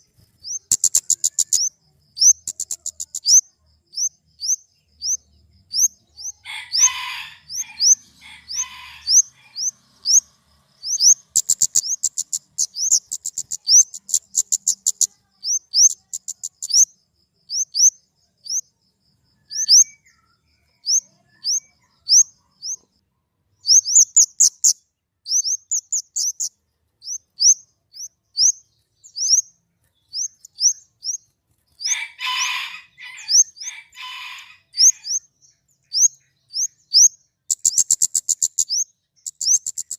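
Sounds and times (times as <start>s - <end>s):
bird chirping: 0.0s - 39.9s
harsh bird chattering: 0.4s - 16.9s, 23.6s - 29.5s, 35.8s - 39.9s.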